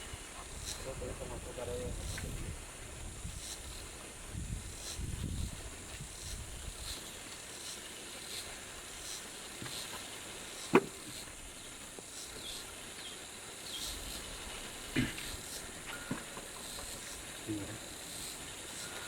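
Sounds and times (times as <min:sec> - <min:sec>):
steady high hiss: 0:00.0 - 0:19.0
short sharp knock: 0:10.7 - 0:11.0
faint bird chirps: 0:11.5 - 0:14.1.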